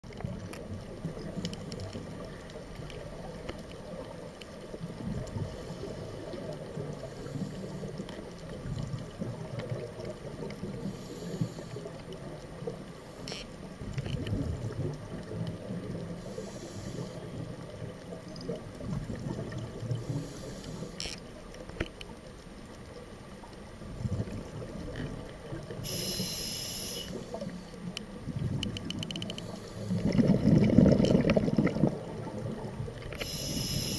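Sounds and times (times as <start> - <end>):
underwater rumble: 0.0 - 33.9
diver breathing through regulator: 10.8 - 12.0, 16.2 - 17.4, 20.0 - 21.1, 25.8 - 27.8, 29.2 - 30.6, 33.1 - 33.9.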